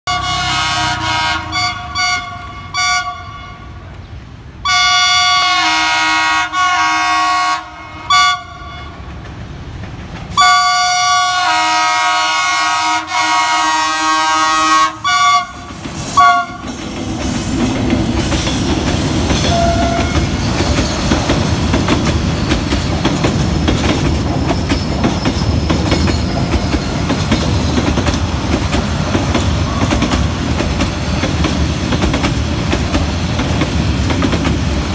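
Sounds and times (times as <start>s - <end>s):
locomotive horn tooting: 0.0s - 3.9s, 4.6s - 9.0s, 10.4s - 16.8s, 19.4s - 20.4s
train rumble and wheel clatter: 0.1s - 34.9s.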